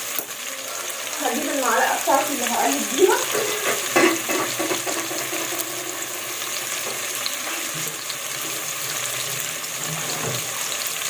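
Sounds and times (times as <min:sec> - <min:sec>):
onions sizzling in hot oil: 0:00.0 - 0:11.0
spoon stirring: 0:03.0 - 0:10.2.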